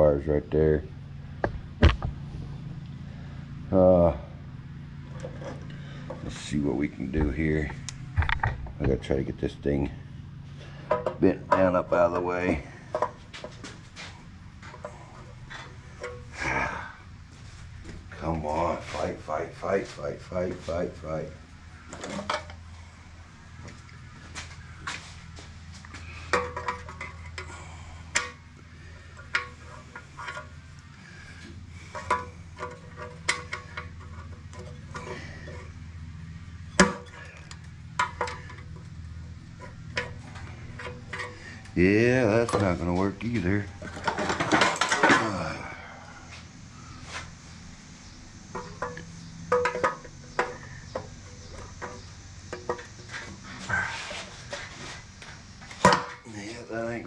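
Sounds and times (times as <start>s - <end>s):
low hum: 0.0s - 56.3s
hand tools clanking on metal: 10.6s - 17.0s, 26.0s - 35.9s, 36.7s - 38.9s, 39.5s - 45.9s, 48.5s - 54.9s, 55.7s - 56.6s.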